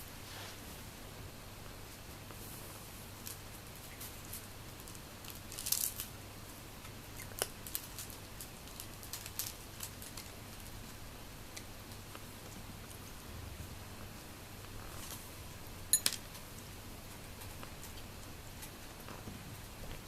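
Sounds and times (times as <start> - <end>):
low steady hum: 0.0 - 20.0
cats eating with crunches: 1.6 - 20.0.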